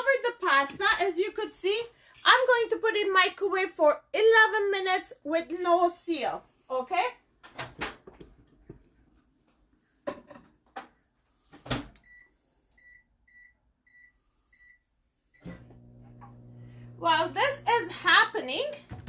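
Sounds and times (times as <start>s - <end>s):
microwave humming: 15.4s - 19.0s.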